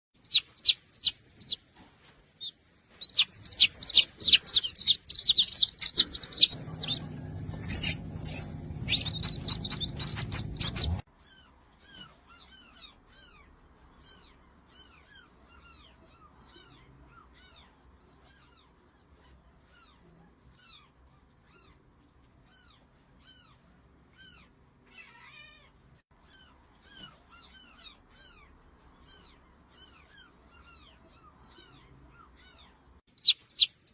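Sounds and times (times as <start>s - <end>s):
small birds chirping: 0.2s - 33.9s
low hum: 4.8s - 11.0s.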